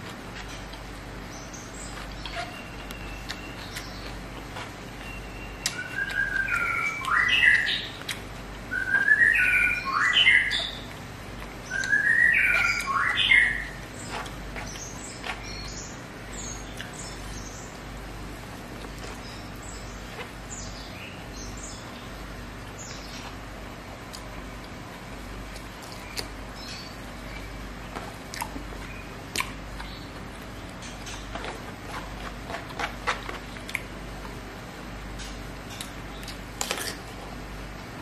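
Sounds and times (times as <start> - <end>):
high bird chirps: 1.3 - 4.2, 4.9 - 8.0, 8.7 - 10.9, 11.6 - 17.8
songbird whistling: 1.4 - 4.1, 4.9 - 8.0, 8.7 - 10.9, 11.6 - 17.7.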